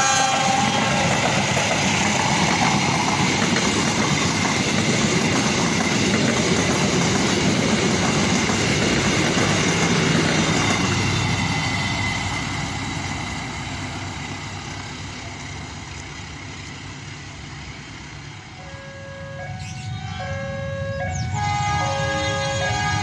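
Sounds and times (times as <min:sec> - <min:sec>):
train coaches rolling on rails: 0:00.0 - 0:23.0
two-tone alarm: 0:18.5 - 0:23.0.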